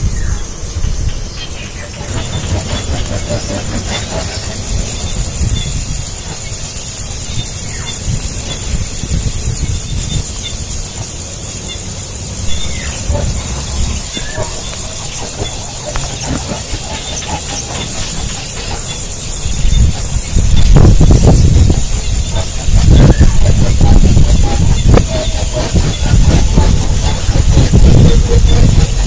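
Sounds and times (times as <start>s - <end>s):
nestlings begging squeals: 1.4s - 28.9s
low rumble: 12.3s - 16.8s.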